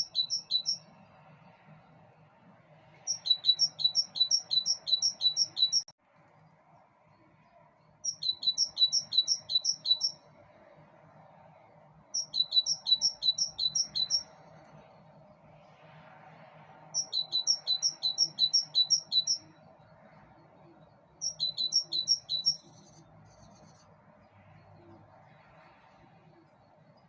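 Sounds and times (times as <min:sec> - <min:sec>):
bird chirping: 0:00.0 - 0:01.7, 0:03.0 - 0:05.9, 0:07.2 - 0:10.8, 0:12.1 - 0:15.2, 0:17.0 - 0:19.7, 0:20.4 - 0:27.0.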